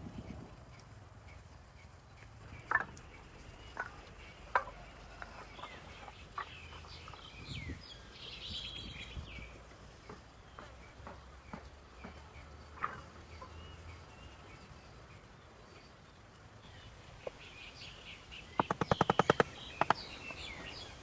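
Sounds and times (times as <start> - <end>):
small birds chirping: 0.1 - 21.0
chickens clucking: 3.7 - 7.2, 16.8 - 21.0
sharp knocks: 18.6 - 20.4.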